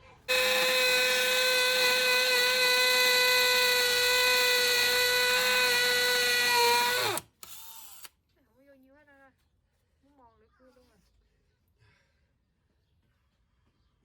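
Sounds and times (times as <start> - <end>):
electric drill drilling into wall: 0.3 - 8.1.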